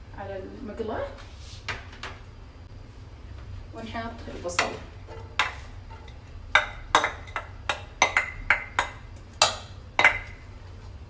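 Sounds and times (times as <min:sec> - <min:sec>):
utensil knocking against frying pan: 0:04.6 - 0:10.4.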